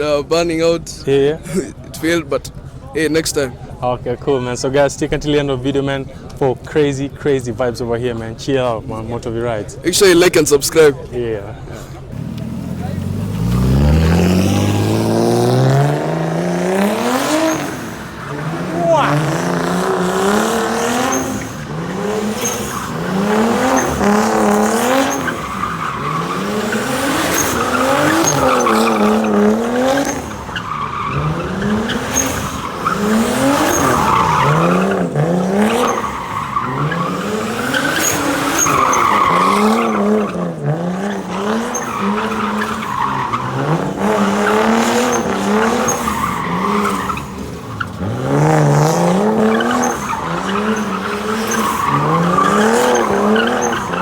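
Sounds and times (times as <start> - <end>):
tyres squealing and skidding: 10.0 - 54.0
car engine revving: 12.0 - 54.0.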